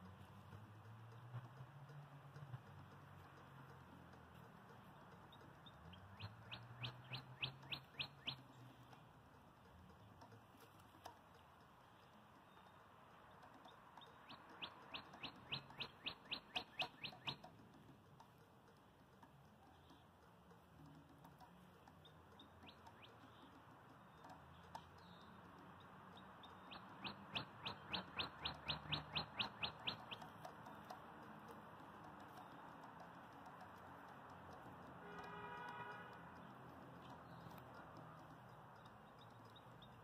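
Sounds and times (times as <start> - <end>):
bird calling sharp notes: 4.8 - 9.1, 11.1 - 17.6, 21.9 - 40.0.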